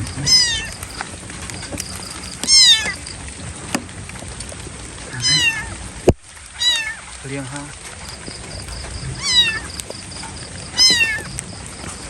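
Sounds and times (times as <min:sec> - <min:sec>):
kitten meowing: 0:00.0 - 0:01.1, 0:01.7 - 0:03.0, 0:05.1 - 0:05.8, 0:06.6 - 0:07.0, 0:09.1 - 0:09.9, 0:10.7 - 0:11.3.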